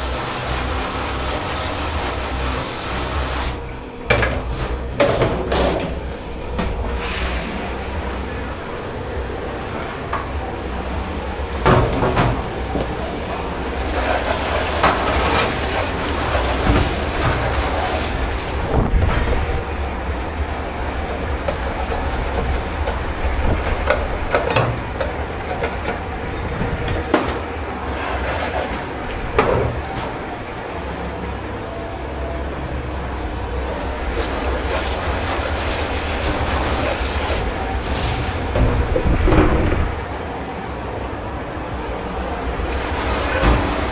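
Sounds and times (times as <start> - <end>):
low machine rumble: 0.0 - 43.9.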